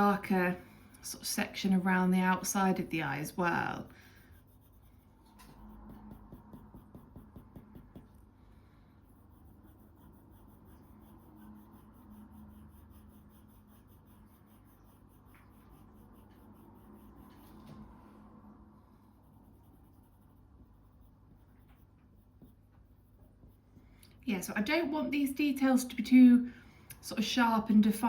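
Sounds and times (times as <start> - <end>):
pencil scratching on paper: 0.0 - 17.9, 19.0 - 23.8.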